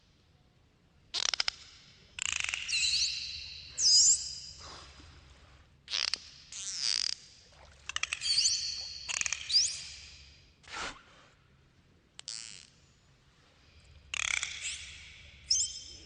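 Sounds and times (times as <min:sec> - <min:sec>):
dolphin clicks: 0:01.1 - 0:03.3, 0:14.1 - 0:15.2.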